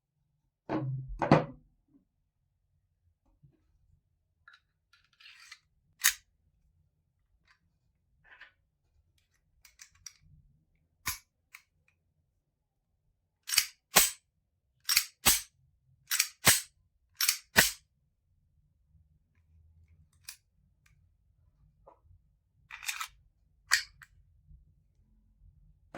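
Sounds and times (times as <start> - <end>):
pistol slide racking clacks: 6.0 - 6.2, 13.5 - 14.2, 14.9 - 15.5, 16.1 - 17.8, 22.8 - 23.1.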